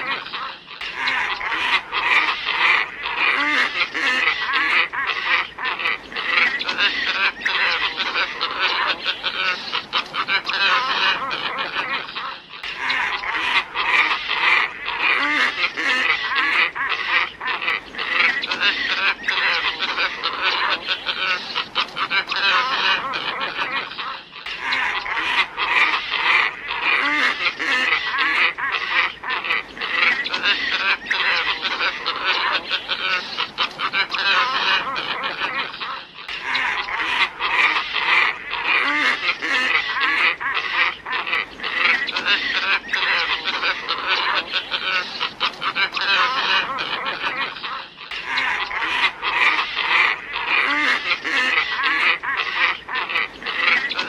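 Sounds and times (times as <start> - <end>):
ibises calling: 0.0 - 54.0.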